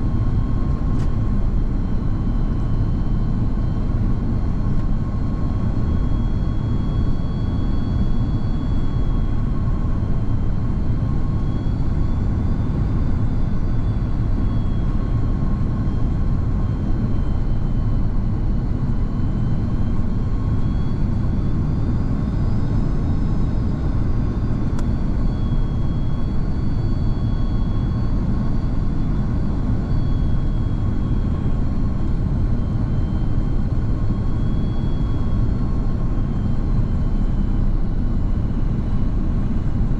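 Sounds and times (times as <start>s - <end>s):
faint high whining tones: 0.0s - 39.9s.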